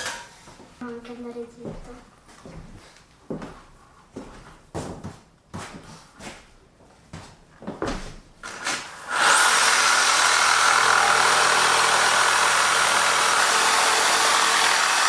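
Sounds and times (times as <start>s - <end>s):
electric power tool running: 8.5s - 15.0s.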